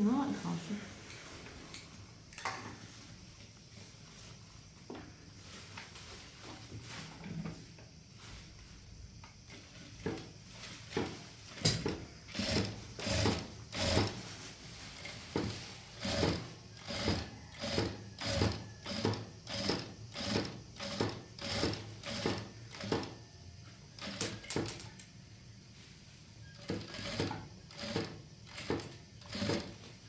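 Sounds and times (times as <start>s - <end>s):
sewing machine stitching: 9.5s - 14.3s, 15.0s - 23.2s, 23.9s - 24.9s, 26.5s - 30.0s.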